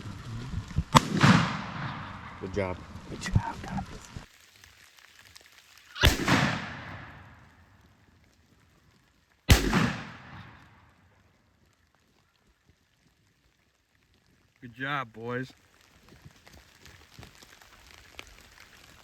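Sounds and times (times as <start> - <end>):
shotgun blasts with echo: 0.9 - 2.9, 6.0 - 7.5, 9.5 - 11.0.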